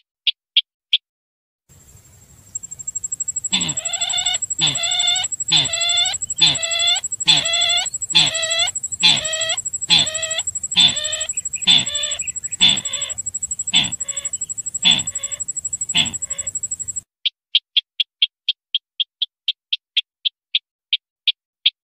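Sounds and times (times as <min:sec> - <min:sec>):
harsh bird calls: 0:02.5 - 0:17.0
thin high whine: 0:02.5 - 0:17.0.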